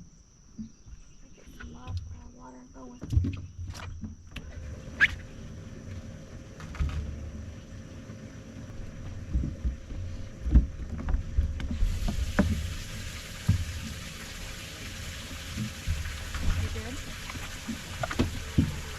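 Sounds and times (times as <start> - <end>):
faint pump hum: 0.0 - 18.9
knocks and thumps on boat hull: 9.0 - 12.7
steady hiss: 11.7 - 18.9.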